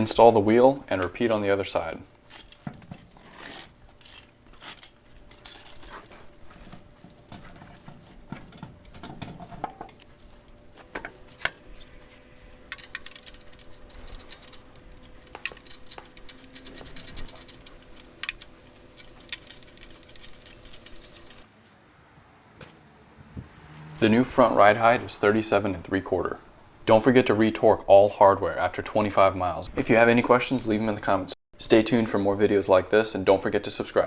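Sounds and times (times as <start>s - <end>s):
metallic clicks of hand tools: 12.6s - 21.5s.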